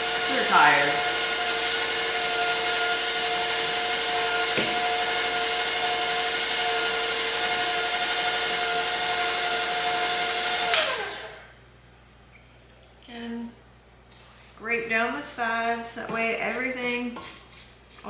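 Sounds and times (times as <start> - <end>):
electric mixer whining: 0.0 - 11.5.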